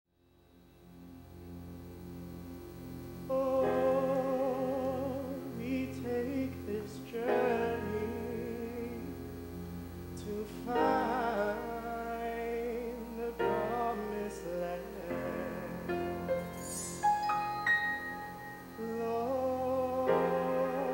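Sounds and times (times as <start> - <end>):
low steady hum: 0.2 - 20.9
instrumental accompaniment: 0.4 - 20.9
voices singing with vibrato: 3.3 - 9.2, 10.1 - 20.9.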